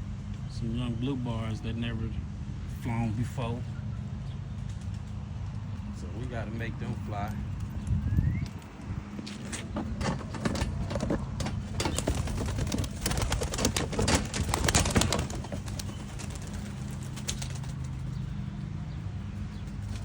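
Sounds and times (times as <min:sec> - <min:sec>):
steady low hum: 0:00.0 - 0:20.0
pigeons flapping wings: 0:04.5 - 0:07.8, 0:10.2 - 0:20.0.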